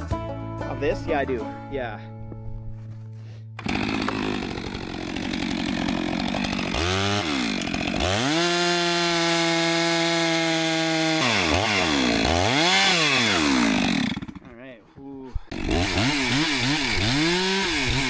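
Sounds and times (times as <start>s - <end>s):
chainsaw revving: 3.6s - 14.5s, 15.5s - 18.0s.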